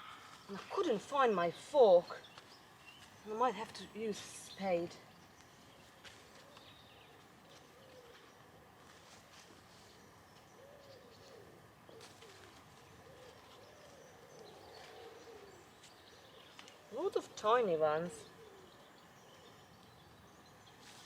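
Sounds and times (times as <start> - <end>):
pigeon cooing faintly: 10.6 - 17.3.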